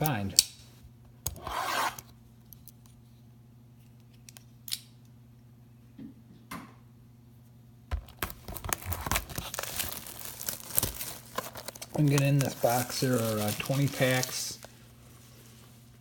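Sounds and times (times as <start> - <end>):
plastic crinkling: 8.0 - 15.9
plastic wrap being cut: 8.2 - 14.7.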